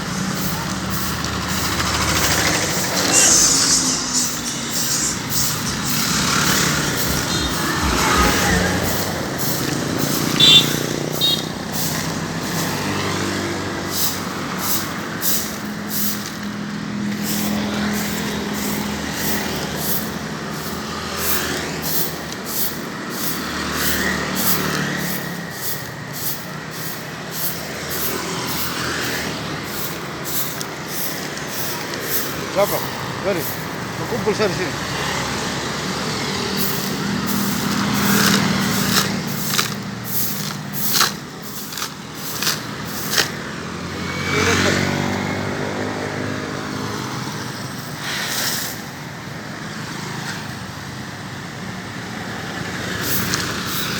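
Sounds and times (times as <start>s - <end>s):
vehicles passing by: 0.0s - 53.9s.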